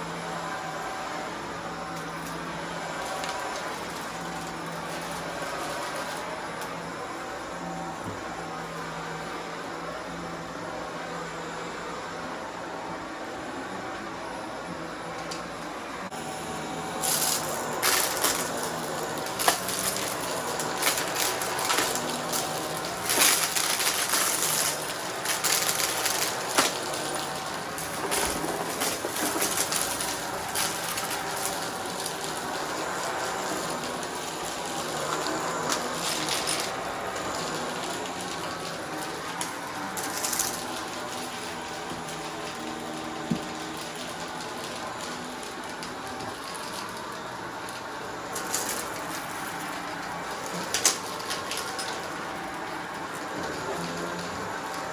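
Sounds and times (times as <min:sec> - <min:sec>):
vacuum cleaner running: 0:00.0 - 0:54.9
debris rattling through vacuum: 0:01.9 - 0:06.8, 0:16.4 - 0:54.9.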